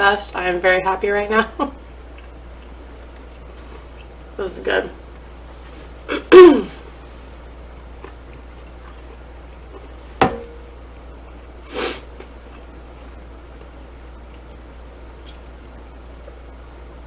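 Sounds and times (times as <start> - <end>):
person eating: 7.8 - 10.0
short sniff: 11.7 - 12.1.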